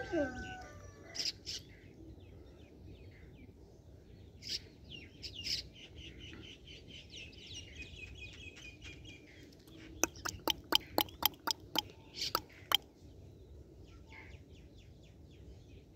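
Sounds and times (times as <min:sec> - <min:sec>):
sharp clicks: 0:10.0 - 0:11.8.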